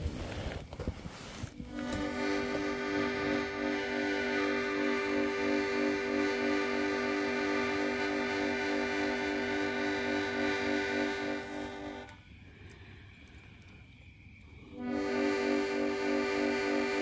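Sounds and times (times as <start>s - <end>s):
harmonica music: 1.5s - 12.2s, 14.7s - 17.0s.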